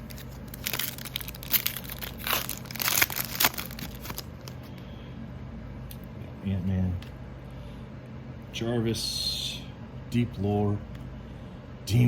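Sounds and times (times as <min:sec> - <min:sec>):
foil wrapper rustling: 0:00.0 - 0:04.7
air conditioner hum: 0:00.0 - 0:12.0.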